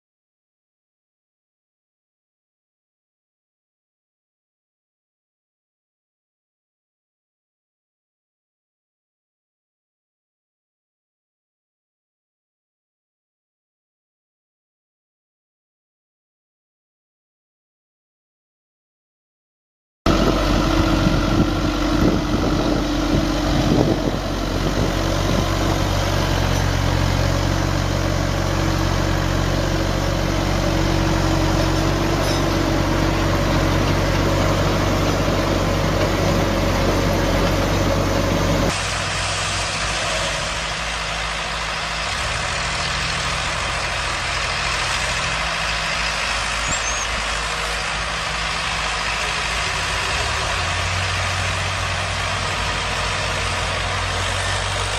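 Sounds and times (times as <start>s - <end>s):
heavy machinery engines running: 20.1s - 54.9s.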